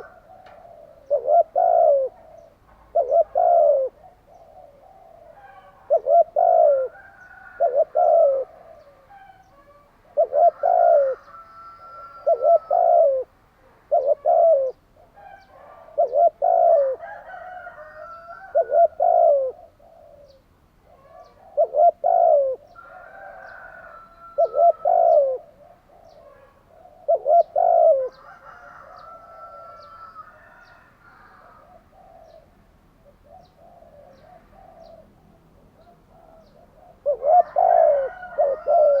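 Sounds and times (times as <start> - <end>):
dove cooing: 0.0 - 39.0
small birds chirping: 17.8 - 30.9.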